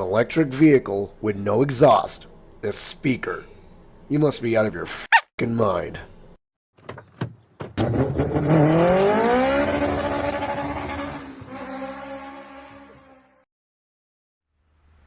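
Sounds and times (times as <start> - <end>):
car engine accelerating hard: 7.8 - 13.2.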